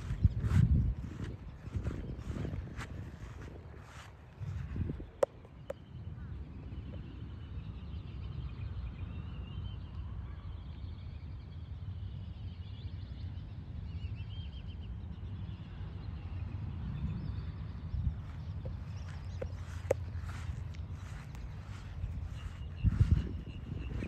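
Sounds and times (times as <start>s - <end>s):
faint distant birds calling: 17.5s - 24.0s.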